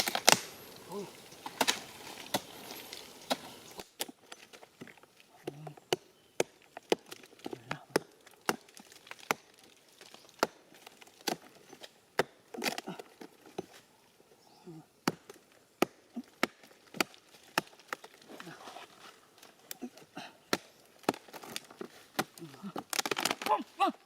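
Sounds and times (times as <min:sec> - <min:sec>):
axe chopping wood: 0:00.0 - 0:04.2, 0:05.4 - 0:09.5, 0:10.4 - 0:11.5, 0:12.1 - 0:12.9, 0:15.0 - 0:18.2, 0:20.5 - 0:23.6.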